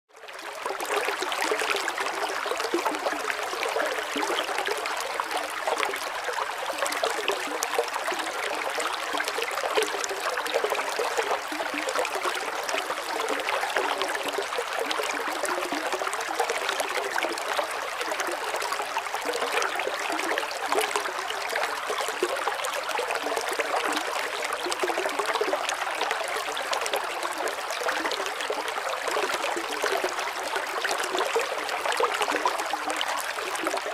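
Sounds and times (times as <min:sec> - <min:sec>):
water trickling and splashing: 0:00.3 - 0:33.9.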